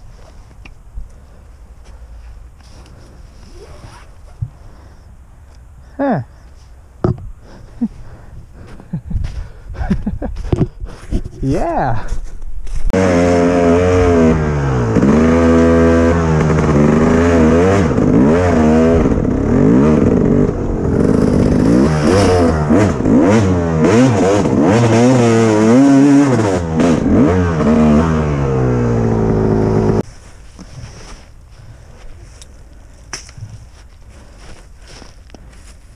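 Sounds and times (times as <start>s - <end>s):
dirt bike engine revving: 12.9s - 30.0s.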